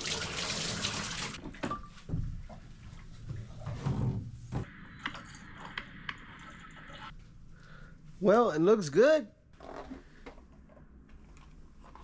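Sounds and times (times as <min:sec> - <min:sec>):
water pouring into bathtub: 0:00.0 - 0:01.4.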